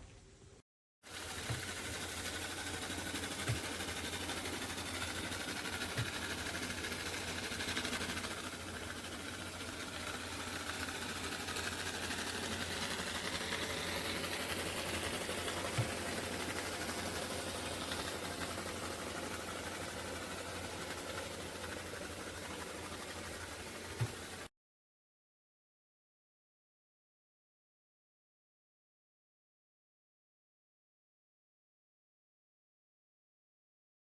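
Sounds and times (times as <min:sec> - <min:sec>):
robot vacuum motor hum: 0:01.1 - 0:24.5.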